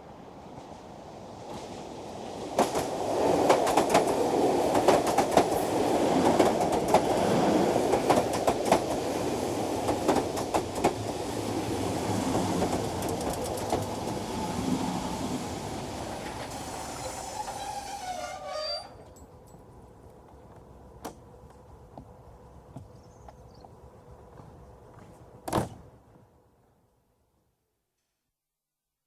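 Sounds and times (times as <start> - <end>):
train rumble: 0.0 - 25.5
train wheels clicking over rail joints: 2.5 - 15.1, 15.7 - 23.4.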